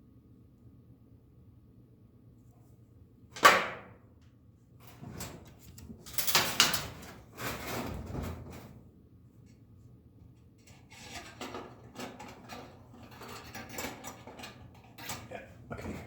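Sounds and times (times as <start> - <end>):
wire scraping and rattling: 4.8 - 8.8, 10.6 - 16.0.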